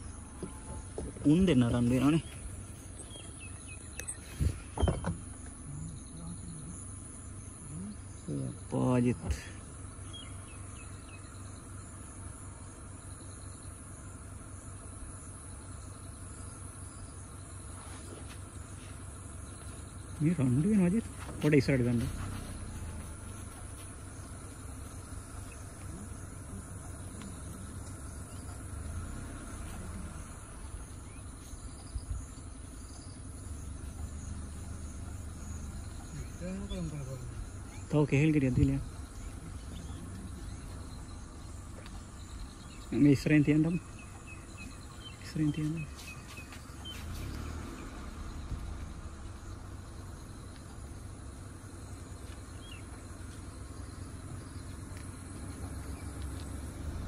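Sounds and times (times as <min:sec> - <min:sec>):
car engine idling: 0:00.0 - 0:57.0
insects chirping: 0:00.0 - 0:57.0
faint high chirp: 0:02.0 - 0:05.1.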